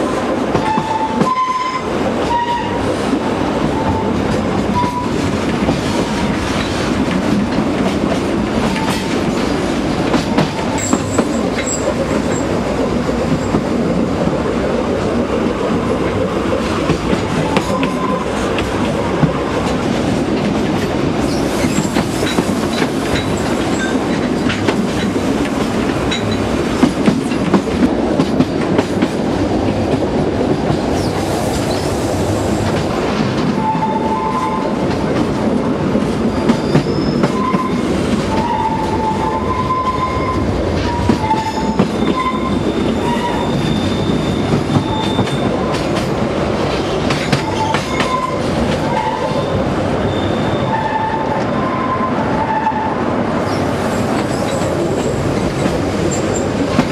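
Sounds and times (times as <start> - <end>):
train wheels clattering over joints: 3.8 - 31.9, 32.5 - 49.6
high wheel squeals: 36.3 - 45.5, 49.0 - 52.9.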